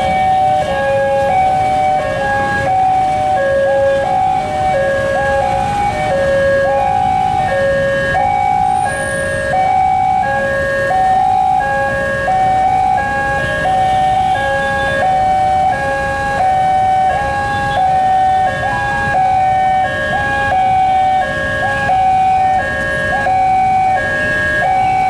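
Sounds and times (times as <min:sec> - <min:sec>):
level crossing two-tone alarm: 0:00.0 - 0:25.0.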